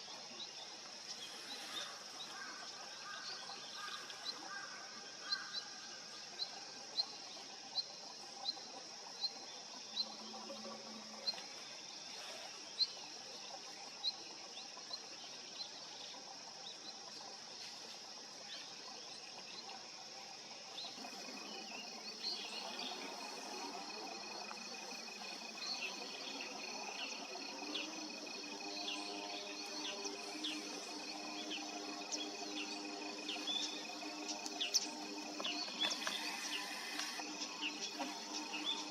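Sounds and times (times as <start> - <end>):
steady high hiss: 0.0 - 38.9
continuous high trill: 20.8 - 38.9
scattered chirps: 21.0 - 38.9.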